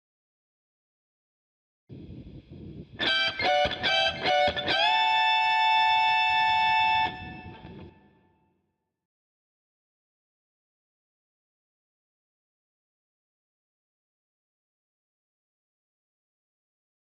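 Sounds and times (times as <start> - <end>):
electric guitar notes: 3.0 - 8.2.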